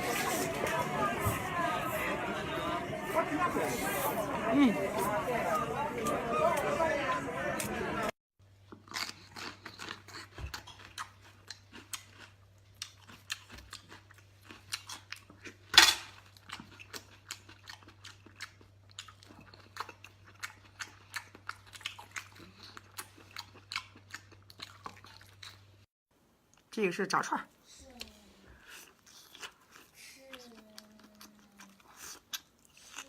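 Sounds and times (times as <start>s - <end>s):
person chewing and crunching food: 8.5s - 25.9s, 27.9s - 33.0s.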